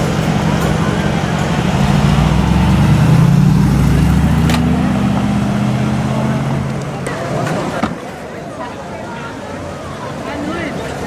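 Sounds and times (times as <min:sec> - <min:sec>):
car engine accelerating: 0:00.4 - 0:07.4.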